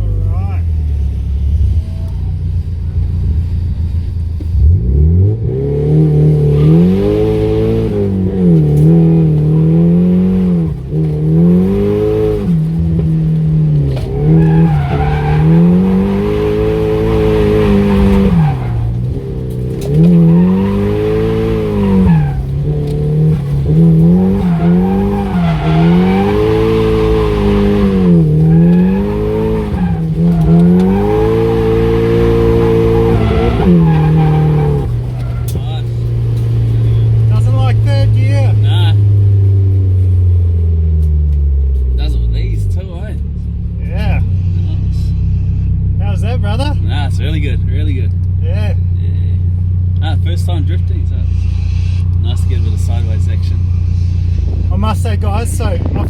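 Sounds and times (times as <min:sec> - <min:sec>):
car engine revving: 0:00.0 - 0:56.0
tyres squealing: 0:06.4 - 0:39.9.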